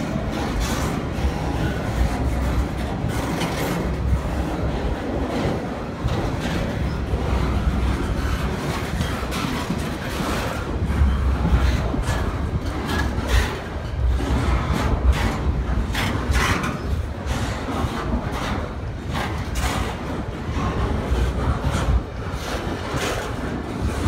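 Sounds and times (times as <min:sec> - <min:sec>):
steel wheels rumbling on rail: 0:00.0 - 0:24.0.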